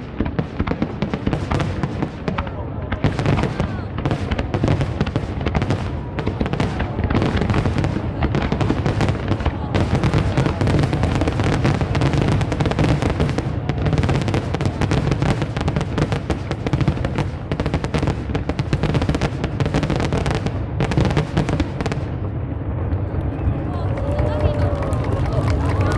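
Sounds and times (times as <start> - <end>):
fireworks bangs and crackling: 0.0 - 25.9.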